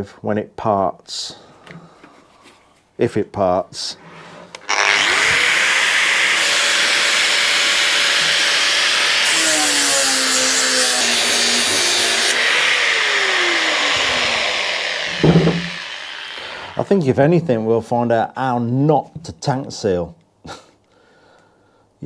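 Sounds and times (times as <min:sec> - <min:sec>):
grinder cutting metal: 0:04.7 - 0:16.8.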